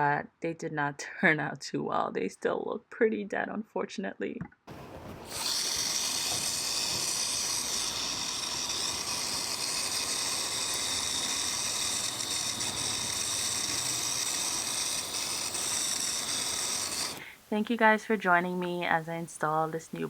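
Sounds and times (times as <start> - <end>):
steady high hiss: 4.7 - 20.0.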